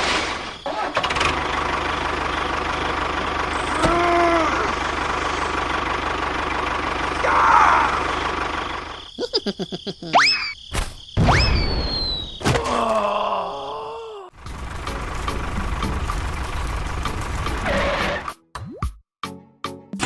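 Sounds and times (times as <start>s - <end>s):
clicks and whistle-like tones: 11.2s - 12.5s.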